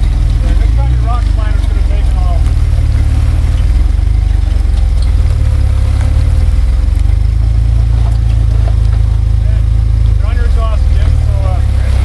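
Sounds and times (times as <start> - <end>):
vehicle engine low rumble: 0.0 - 12.0.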